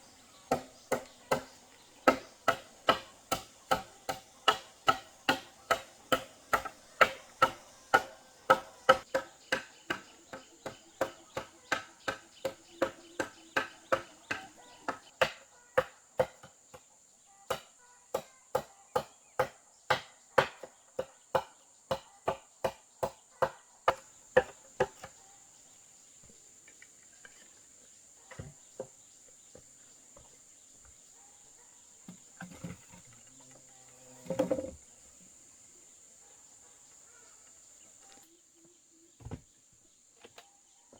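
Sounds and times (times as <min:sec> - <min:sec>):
insect buzzing: 0:00.0 - 0:15.1, 0:24.0 - 0:40.2
hand tool strikes: 0:00.5 - 0:16.4.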